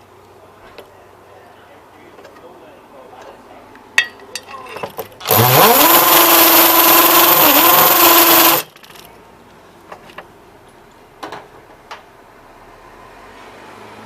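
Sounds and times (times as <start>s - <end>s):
electric drill drilling: 5.2s - 8.7s.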